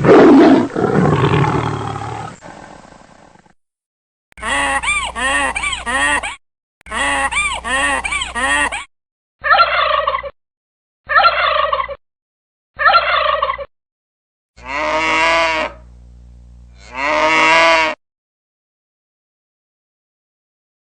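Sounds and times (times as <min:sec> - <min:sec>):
honking animal call: 0:12.8 - 0:13.6, 0:14.6 - 0:15.8, 0:16.8 - 0:18.0
long drawn-out animal calls: 0:14.6 - 0:15.8, 0:16.8 - 0:18.0.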